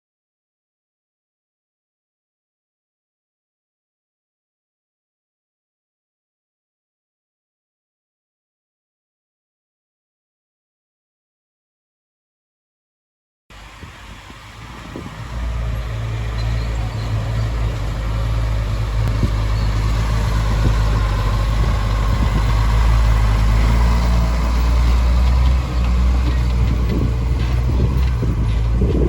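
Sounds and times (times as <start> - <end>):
diesel engine humming: 13.5 - 29.0.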